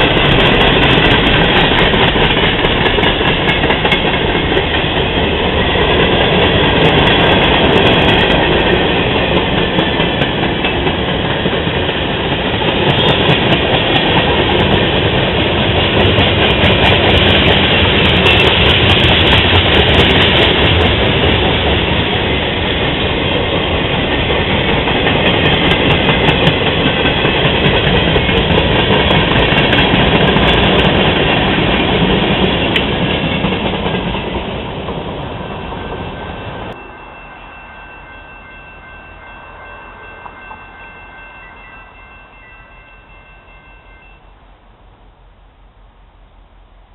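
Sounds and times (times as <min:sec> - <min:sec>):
freight train cars rolling past: 0:00.0 - 0:45.1.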